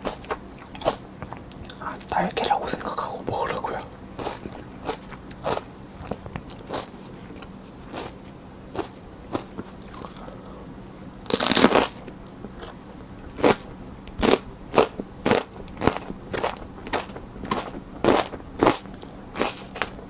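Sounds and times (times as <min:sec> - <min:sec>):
crunchy chewing: 0:00.0 - 0:20.0
crunching bite of pepper: 0:11.3 - 0:12.0.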